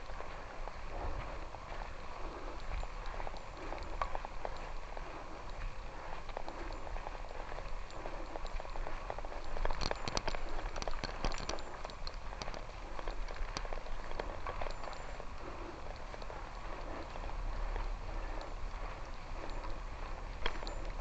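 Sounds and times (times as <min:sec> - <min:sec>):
loose gravel crunching: 0:00.0 - 0:21.0
steady rushing noise: 0:00.0 - 0:21.0.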